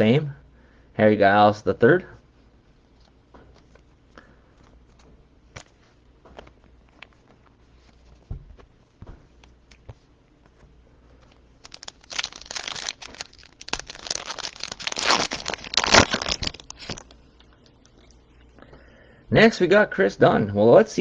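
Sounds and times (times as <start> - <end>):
foil wrapper tearing and crinkling: 11.6 - 17.2.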